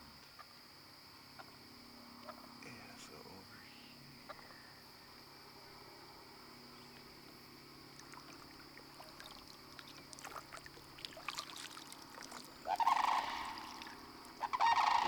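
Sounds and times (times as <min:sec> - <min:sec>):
insects trilling: 0:00.0 - 0:15.0
water lapping: 0:06.2 - 0:15.0.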